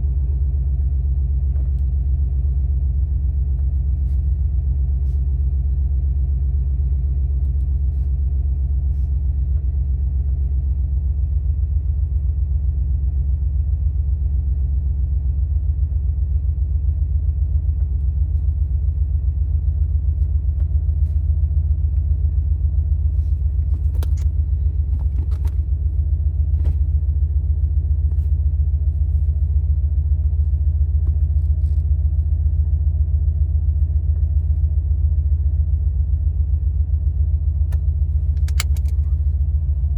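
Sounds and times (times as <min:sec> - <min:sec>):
car engine idling: 0:14.0 - 0:39.9
brief clicks: 0:23.7 - 0:24.4, 0:37.7 - 0:39.2.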